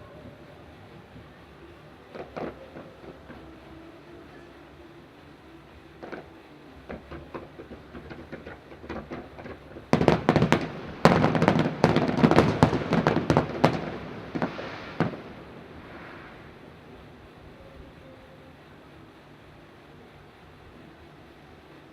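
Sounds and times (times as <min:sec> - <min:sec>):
fireworks bangs and crackle: 0:02.1 - 0:03.7, 0:06.0 - 0:17.1.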